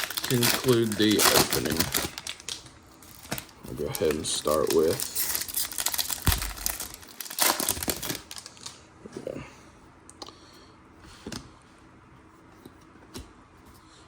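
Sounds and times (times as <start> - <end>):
cards rustling and clicking: 0.0 - 8.7
wrapper crinkling and tearing: 0.0 - 8.8.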